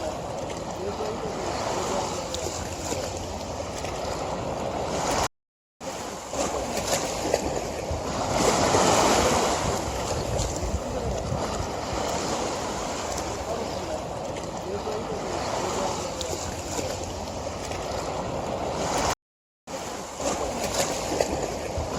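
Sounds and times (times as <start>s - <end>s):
river water flowing: 0.0s - 21.9s.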